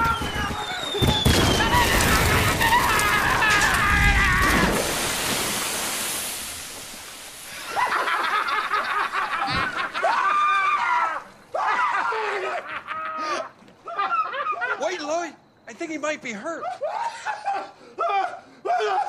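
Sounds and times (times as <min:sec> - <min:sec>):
fireworks fizzing and hissing: 0:00.0 - 0:11.6.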